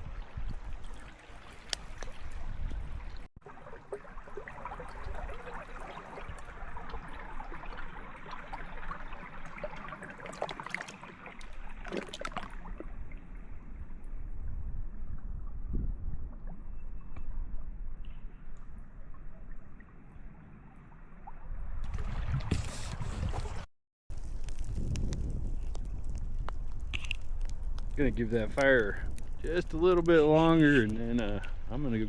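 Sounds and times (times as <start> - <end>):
wind gusting on microphone: 0.0 - 3.3, 13.7 - 16.5, 21.7 - 32.0
campfire crackling and popping: 24.1 - 31.7.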